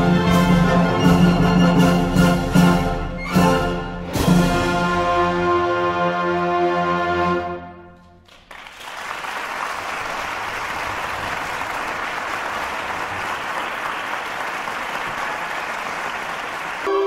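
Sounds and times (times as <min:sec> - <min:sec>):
background music: 0:00.0 - 0:08.2.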